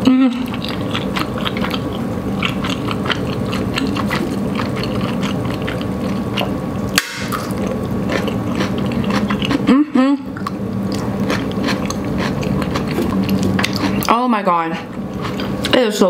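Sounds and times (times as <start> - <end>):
steady low hum: 0.0 - 16.0
chewing with wet mouth clicks: 0.4 - 6.6, 7.3 - 9.6, 10.4 - 14.2.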